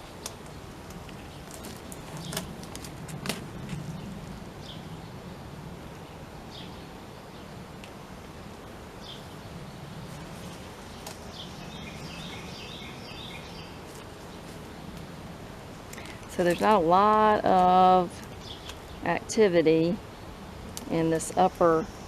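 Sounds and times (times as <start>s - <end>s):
honeybees humming: 0.0s - 22.0s
birds chirping: 9.0s - 15.2s, 15.8s - 20.3s
bird singing repeated notes: 10.9s - 13.8s.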